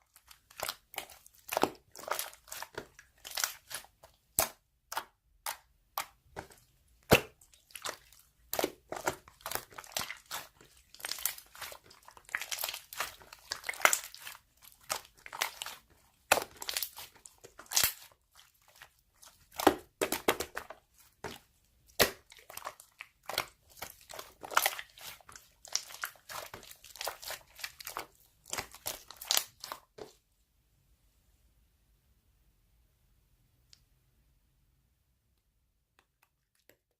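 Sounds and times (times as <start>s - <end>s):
crinkling and crunching when handled: 6.3s - 30.2s.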